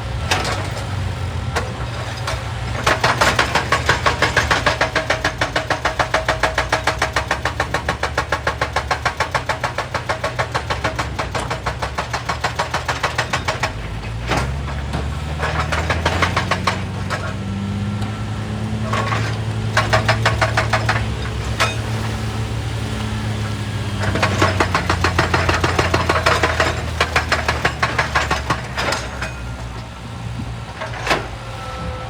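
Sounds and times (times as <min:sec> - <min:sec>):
diesel engine running: 0:00.0 - 0:32.0
hydraulic breaker hammering rock: 0:00.2 - 0:32.0.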